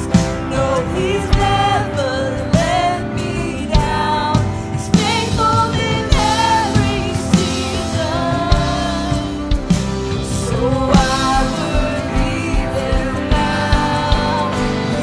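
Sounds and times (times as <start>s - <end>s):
worship band music with singing: 0.0s - 15.0s
drum hits: 3.8s - 15.0s.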